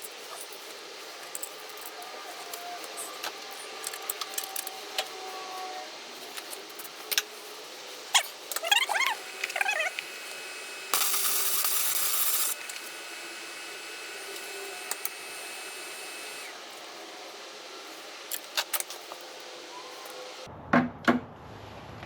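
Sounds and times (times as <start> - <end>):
welder crackling: 8.1 - 16.9.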